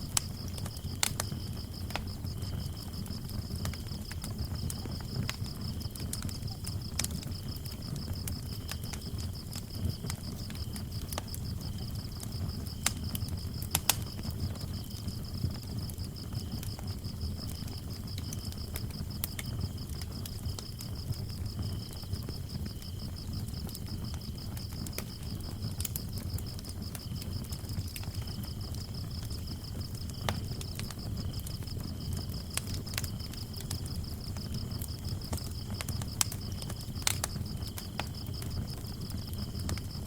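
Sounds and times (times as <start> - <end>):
low rumble of flames: 0.0 - 40.0
wood fire crackling and popping: 0.0 - 40.0.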